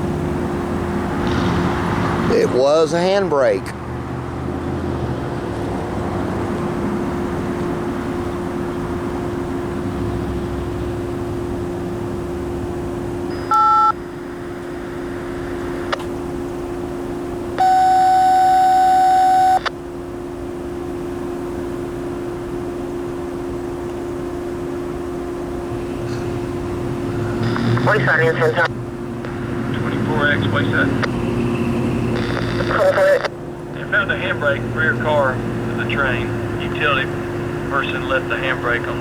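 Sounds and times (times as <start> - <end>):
steady low hum: 0.0 - 39.0
loud steady beep: 13.3 - 14.0, 17.6 - 19.7, 27.4 - 28.7, 31.3 - 33.3
two-tone beep: 13.3 - 14.0, 17.6 - 19.7.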